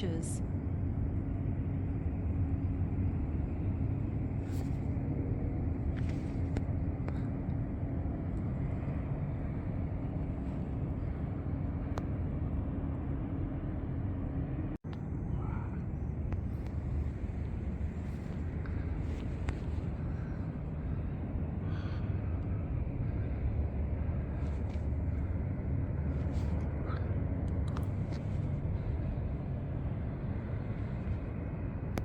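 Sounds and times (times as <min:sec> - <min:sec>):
faint steady hum: 0:00.0 - 0:32.0
running vehicle rumble: 0:00.0 - 0:32.0.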